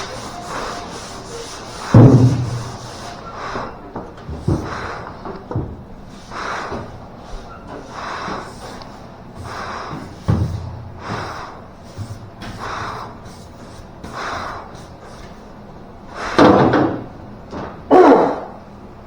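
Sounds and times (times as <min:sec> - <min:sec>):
sandpaper sanding strokes: 0:00.0 - 0:03.7.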